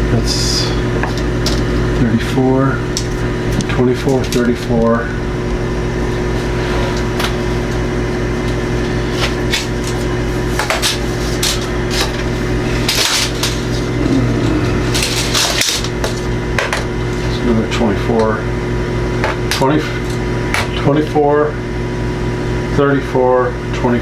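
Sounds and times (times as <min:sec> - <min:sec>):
low machine hum: 0:00.0 - 0:24.0
objects being handled: 0:06.1 - 0:17.4.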